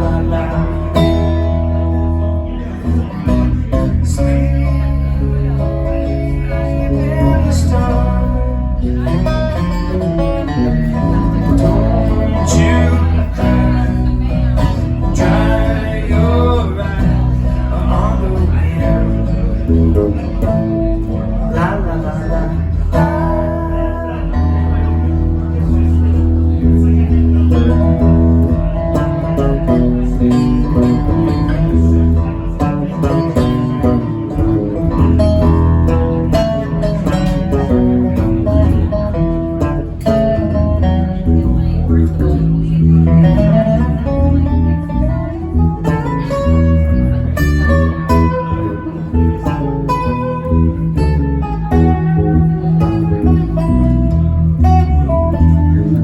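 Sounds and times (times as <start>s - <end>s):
person singing: 0.0s - 1.8s, 2.5s - 9.9s, 10.9s - 25.2s
bass: 0.0s - 56.0s
guitar: 0.0s - 56.0s.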